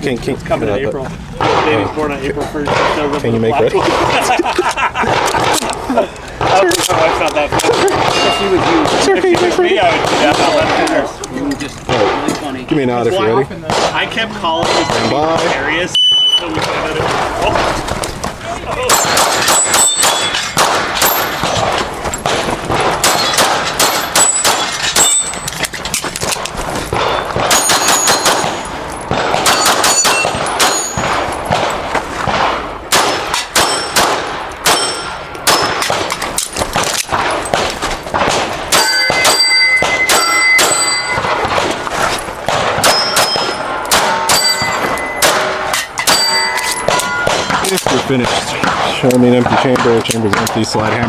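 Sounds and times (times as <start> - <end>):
pistol shots: 1.4 - 2.0, 2.6 - 4.4, 5.0 - 5.8, 6.4 - 11.1, 11.9 - 12.5, 13.6 - 51.0
steel targets ringing: 8.0 - 8.8, 18.9 - 21.6, 23.0 - 25.6, 26.9 - 31.6, 33.6 - 34.1, 34.7 - 35.9, 38.7 - 41.6, 42.7 - 48.2.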